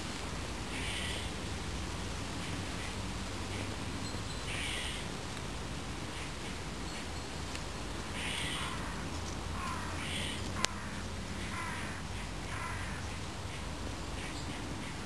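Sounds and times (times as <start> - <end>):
steady background noise: 0.0 - 15.0
harsh crow-like bird calls: 0.7 - 1.3, 4.5 - 5.1, 8.2 - 13.6.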